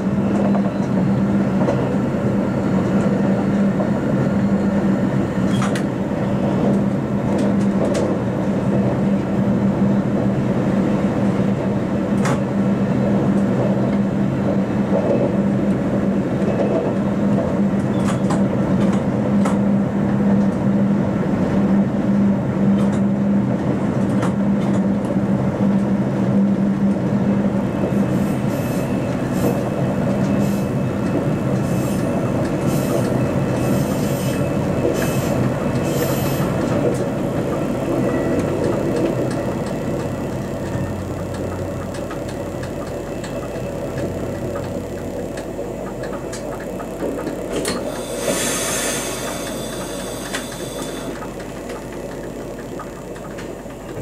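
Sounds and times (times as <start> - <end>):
train hum: 0.0 - 54.0
train running gear rumble: 0.0 - 54.0
wheels clicking over rails: 28.9 - 54.0.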